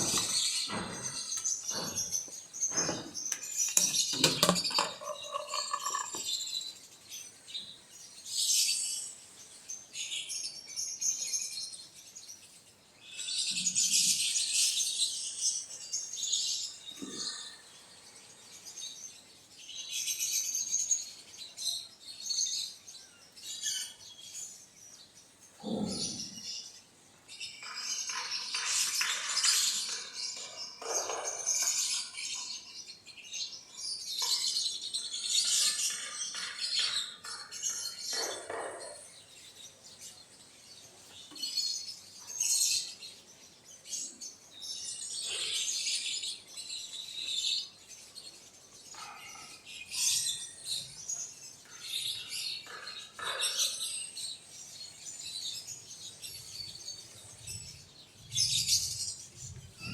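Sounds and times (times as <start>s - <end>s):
low sweeping bird calls: 0.0s - 6.6s, 25.6s - 26.6s
birds chirping: 0.0s - 59.9s.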